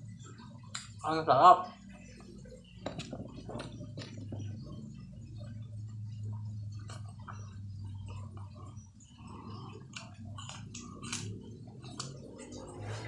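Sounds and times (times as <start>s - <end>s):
steady low hum: 0.0s - 13.0s
wet chewing: 2.1s - 13.0s
cucumber crunching: 9.8s - 12.8s.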